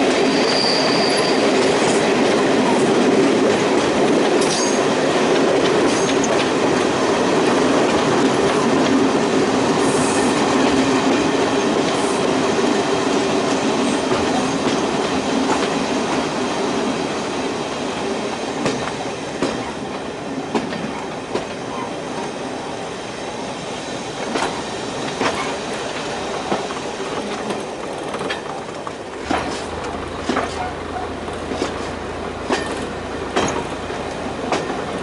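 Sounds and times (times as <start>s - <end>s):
train running noise: 0.0s - 35.0s
wheels clicking over rail joints: 24.2s - 35.0s.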